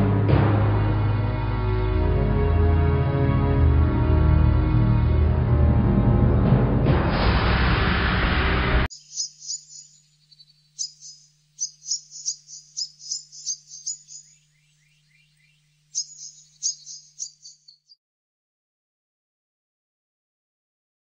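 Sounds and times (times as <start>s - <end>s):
faint low hum: 8.9s - 18.0s
small birds chirping: 8.9s - 18.0s.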